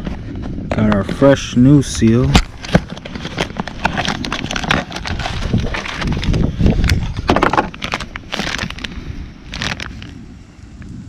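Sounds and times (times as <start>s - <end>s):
plastic packaging crinkling: 2.0s - 10.2s.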